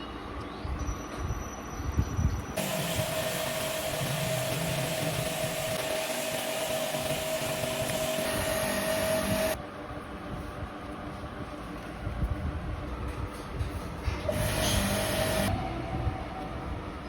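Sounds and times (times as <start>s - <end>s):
workshop machine whining: 2.3s - 9.6s, 14.0s - 17.0s.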